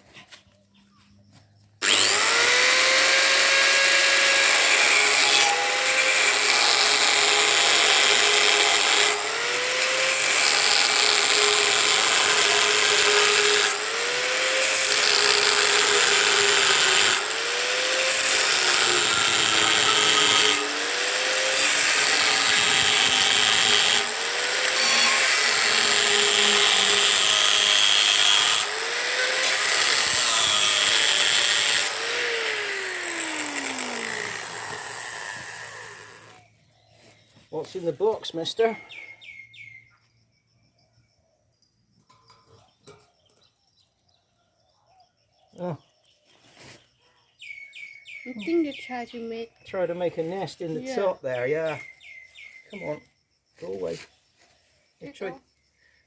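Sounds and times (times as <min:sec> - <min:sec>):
power tool cutting steel pole: 0:01.8 - 0:36.5.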